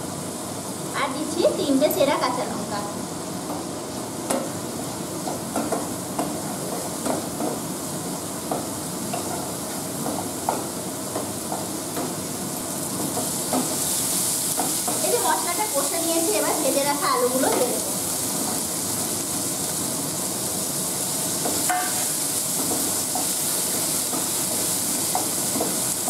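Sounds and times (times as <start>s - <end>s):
food sizzling in oil: 0.0s - 26.0s
spatula scraping and tapping pan: 5.2s - 12.2s, 12.9s - 15.2s, 21.4s - 26.0s.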